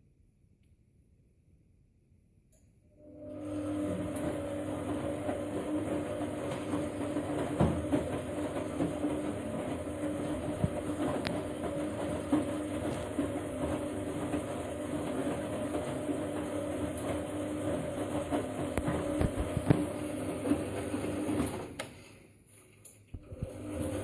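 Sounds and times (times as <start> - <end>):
washing machine motor humming: 2.9 - 21.9, 23.1 - 24.0
drum knocking and clattering: 6.5 - 9.3.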